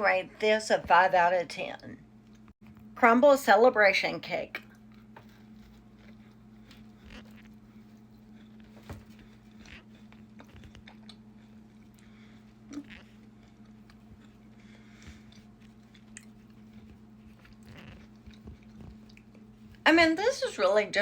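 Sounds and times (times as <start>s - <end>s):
steady low hum: 0.0s - 21.0s
chewing and biting cookie: 4.6s - 19.8s.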